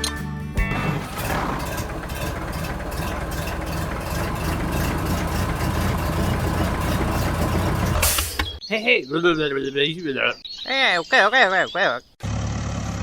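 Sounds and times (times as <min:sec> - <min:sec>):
engine chugging steadily: 0:00.6 - 0:08.2.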